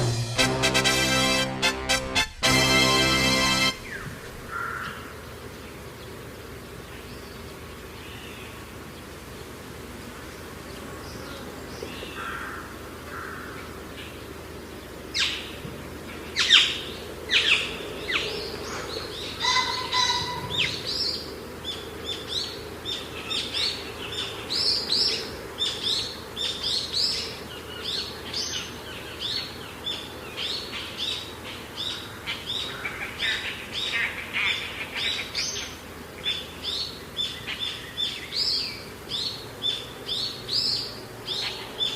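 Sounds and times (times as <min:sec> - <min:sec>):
steady background hiss: 0:00.0 - 0:41.9
birds chirping: 0:02.6 - 0:06.2.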